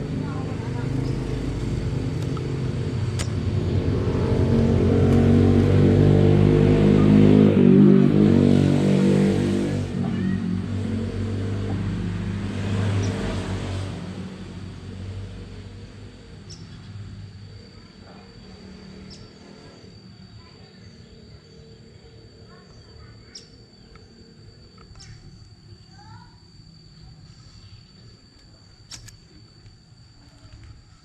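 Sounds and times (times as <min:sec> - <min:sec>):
vehicle engine passing by: 0:00.0 - 0:22.5.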